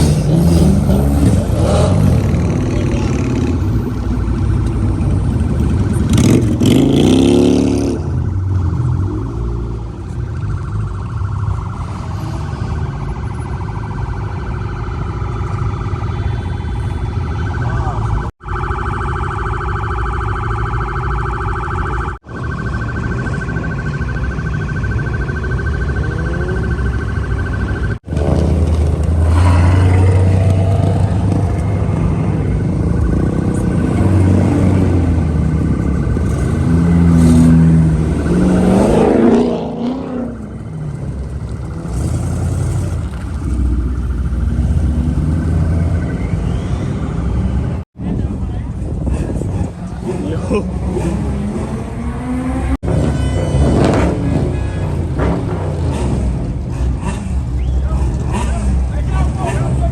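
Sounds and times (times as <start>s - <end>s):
car engines revving: 0.0s - 59.9s
siren-like wailing tone: 0.1s - 47.8s.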